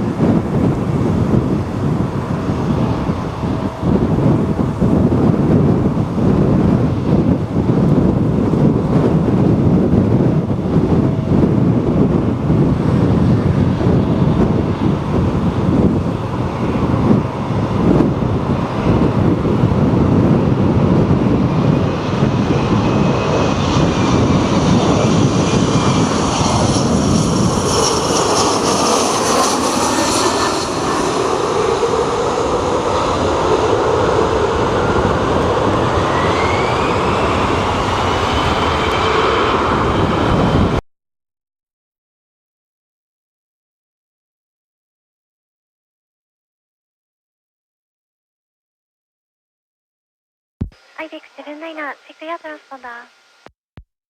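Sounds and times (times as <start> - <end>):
jet airliner engine whine: 0.0 - 40.8
wind buffeting microphone: 0.0 - 40.8.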